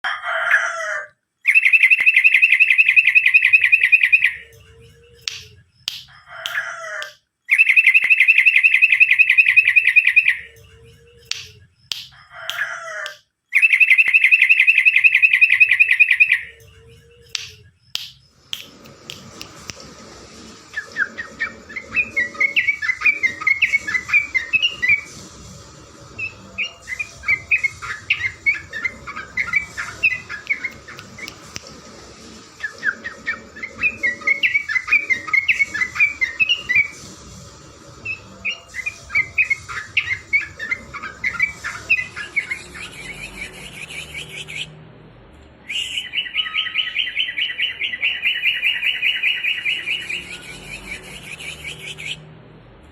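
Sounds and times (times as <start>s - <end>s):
bird call and rapid trill: 1.4s - 12.7s, 13.5s - 18.3s, 20.7s - 25.2s, 26.2s - 31.3s, 32.6s - 37.0s, 38.0s - 44.6s.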